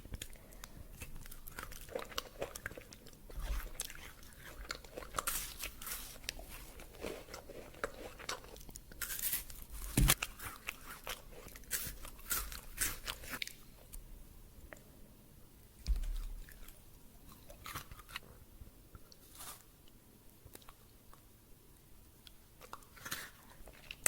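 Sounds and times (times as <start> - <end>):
chewing crunchy candy: 0.0 - 13.9.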